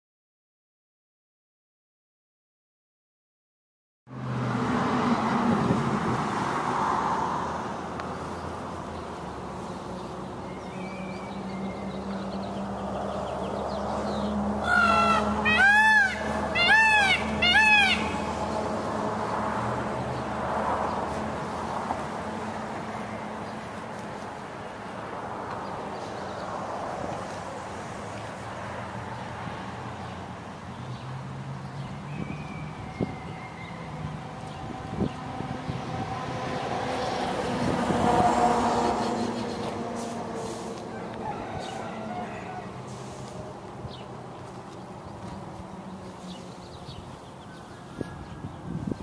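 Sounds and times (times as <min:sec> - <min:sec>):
bird calls rising and falling: 0:10.4 - 0:18.7.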